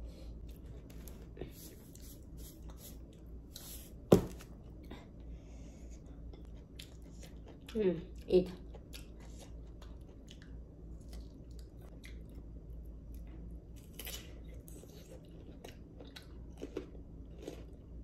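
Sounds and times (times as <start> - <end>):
chewing crisp cucumber: 6.4 - 12.4, 13.1 - 18.0.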